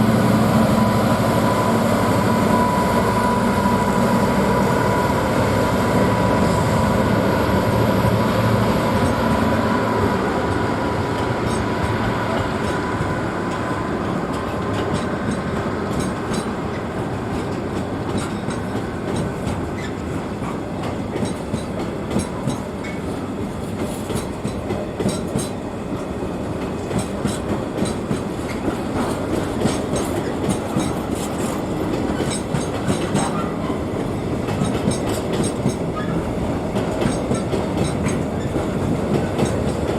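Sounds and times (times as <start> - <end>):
train engine hum: 0.0 - 39.9
train wheels clattering over rail joints: 10.5 - 39.9.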